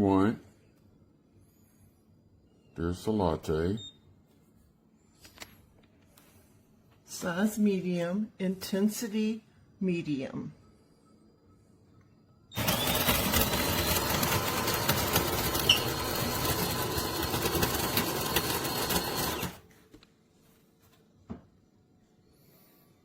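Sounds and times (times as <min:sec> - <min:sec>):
coffee grinder grinding beans: 0:12.6 - 0:19.7.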